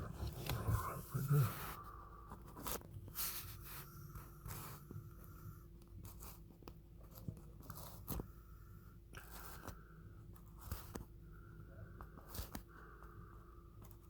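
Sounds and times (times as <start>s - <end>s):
handling rustles: 0.0s - 1.6s
low steady hum: 0.0s - 14.0s.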